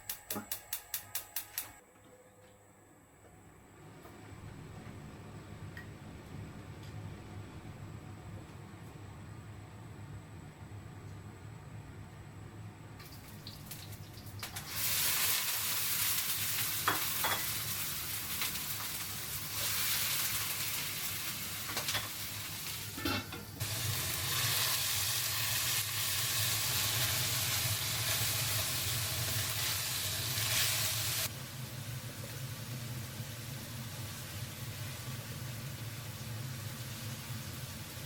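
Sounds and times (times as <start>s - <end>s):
steady low hum: 0.0s - 13.0s
food sizzling in a pan: 13.0s - 38.0s.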